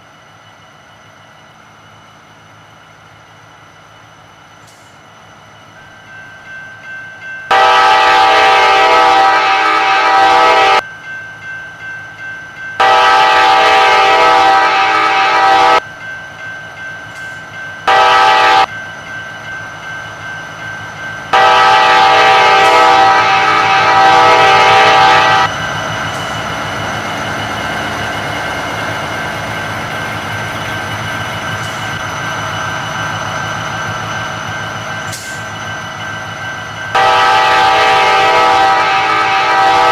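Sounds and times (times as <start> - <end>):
freight train rumble and clatter: 0.0 - 39.9
locomotive air horn blasts: 7.5 - 10.8, 12.8 - 15.8, 17.9 - 18.7, 21.3 - 25.5, 36.9 - 39.9.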